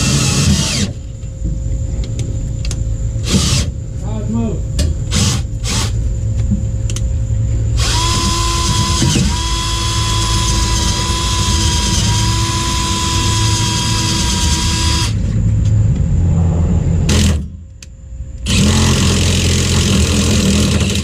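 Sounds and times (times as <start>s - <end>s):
electric drill whining under load: 0.0s - 1.0s, 7.8s - 15.2s, 18.4s - 21.0s.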